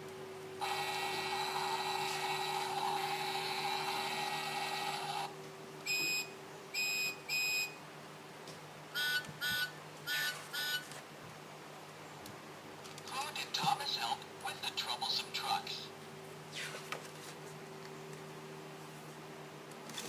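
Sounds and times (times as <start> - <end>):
two-tone beeps: 5.9 - 7.7.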